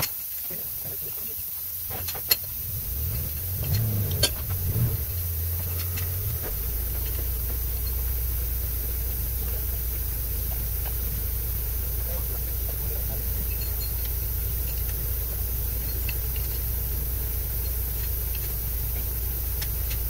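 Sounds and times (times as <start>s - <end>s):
car engine starting and idling: 1.6s - 20.0s
ignition click: 1.9s - 9.8s.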